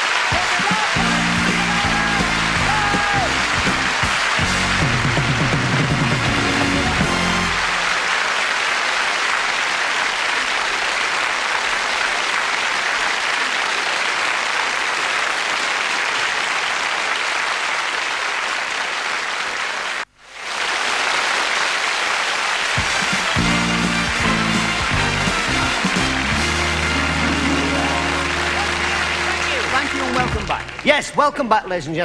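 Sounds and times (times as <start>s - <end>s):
studio audience applauding: 0.0s - 31.4s
band music: 0.1s - 8.0s, 22.8s - 31.0s.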